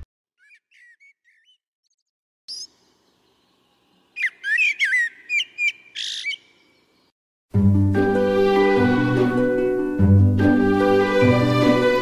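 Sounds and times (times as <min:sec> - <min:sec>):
bird chirps: 0:00.0 - 0:07.1
whistled bird chirps: 0:00.4 - 0:02.7, 0:03.4 - 0:06.8.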